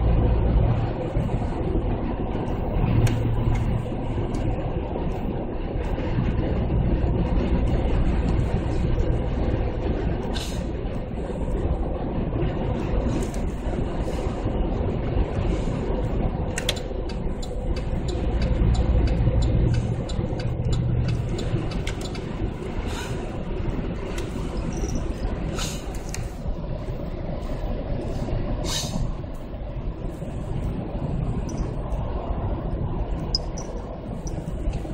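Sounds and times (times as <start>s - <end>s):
exhaust low rumble: 0.0s - 34.9s
road noise: 0.0s - 34.9s.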